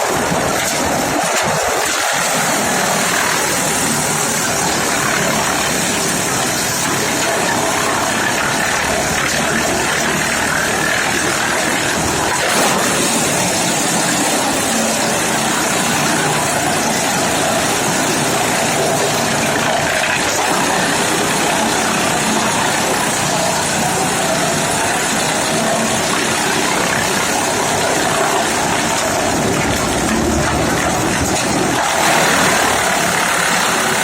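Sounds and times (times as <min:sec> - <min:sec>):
wood chipper running: 0:00.0 - 0:34.0.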